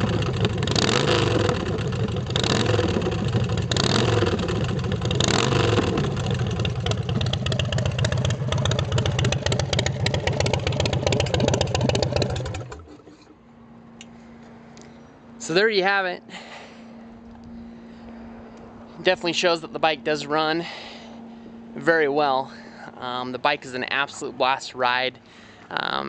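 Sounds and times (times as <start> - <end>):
motorcycle engine revving and idling: 0.0 - 14.6.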